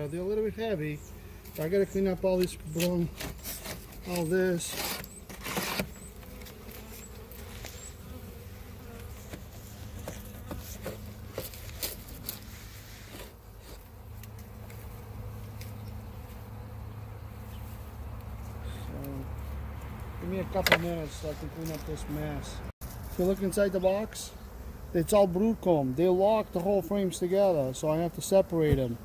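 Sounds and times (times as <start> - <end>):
honeybee colony buzzing: 0.0 - 29.0.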